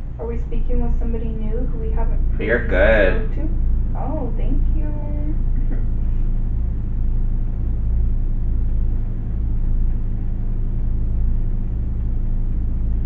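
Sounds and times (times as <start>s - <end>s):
low hum: 0.0s - 13.0s
even hiss: 2.2s - 3.4s.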